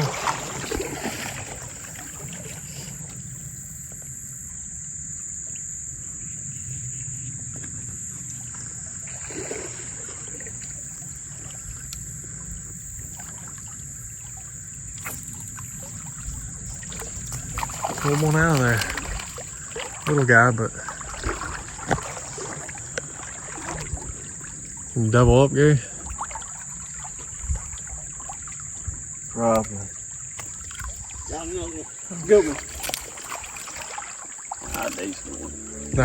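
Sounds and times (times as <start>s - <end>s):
insects droning: 0.0s - 36.0s
low steady rumble: 35.1s - 36.0s.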